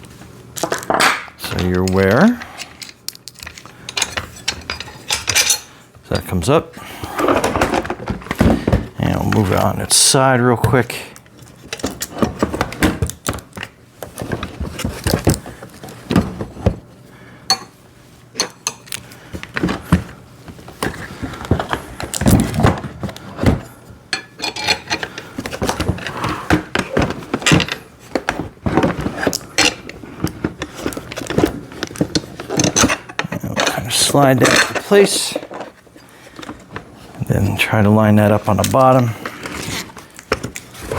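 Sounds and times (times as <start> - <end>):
plastic and metal parts clinking: 0.6 - 6.3, 26.7 - 35.8.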